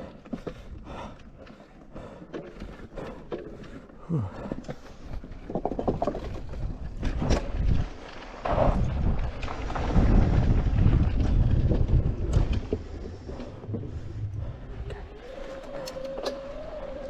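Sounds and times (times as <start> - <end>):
wind buffeting microphone: 5.0 - 17.0.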